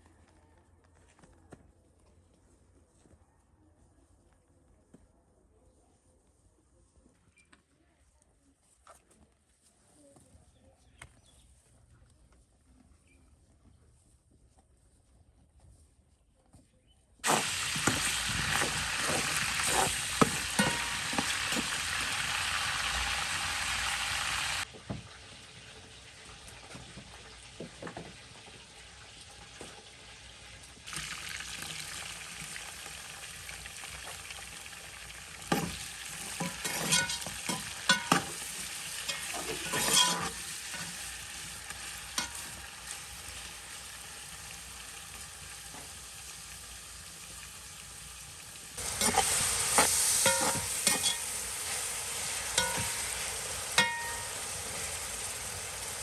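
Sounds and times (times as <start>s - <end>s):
stirring utensil scraping: 17.2s - 24.6s, 35.4s - 43.1s, 48.8s - 54.9s
food sizzling in a pan: 17.2s - 24.7s, 25.6s - 56.0s.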